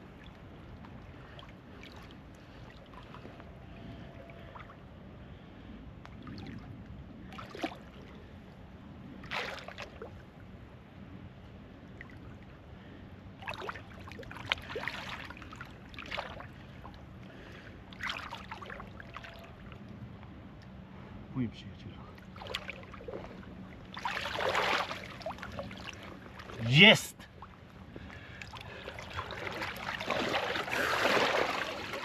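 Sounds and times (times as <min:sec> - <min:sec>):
steady low hum: 0:00.0 - 0:32.0
water splashing against boat: 0:06.2 - 0:08.3, 0:09.2 - 0:10.4, 0:13.3 - 0:20.7, 0:22.0 - 0:32.0.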